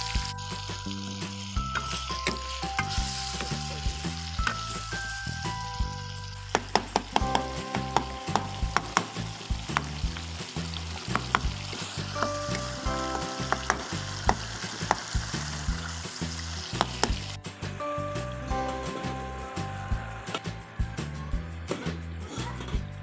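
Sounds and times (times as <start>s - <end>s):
masala sizzling in wok: 0.0s - 17.8s.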